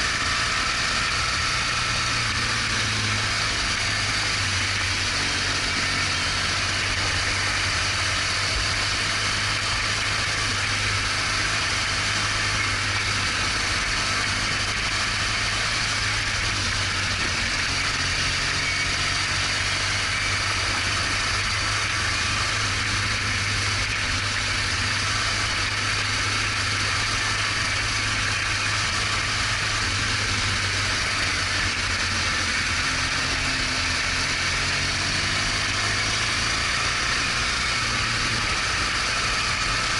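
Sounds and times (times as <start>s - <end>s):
constant rushing noise: 0.0s - 39.9s
motorcycle engine running: 0.0s - 39.9s.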